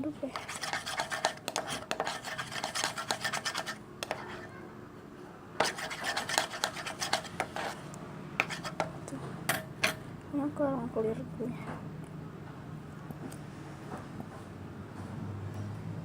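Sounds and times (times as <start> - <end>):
stirrer scraping a container: 0.3 - 4.5, 5.6 - 9.0.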